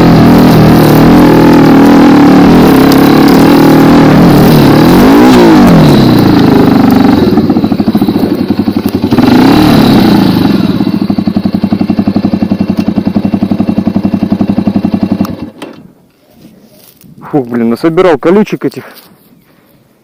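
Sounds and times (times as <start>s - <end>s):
dirt bike engine revving and idling: 0.0s - 15.8s.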